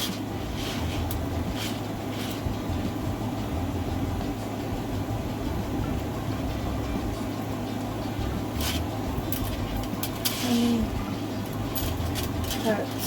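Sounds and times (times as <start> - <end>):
rustling of craft material: 0.0 - 2.5, 11.7 - 13.0
low hum of machinery: 0.0 - 13.0.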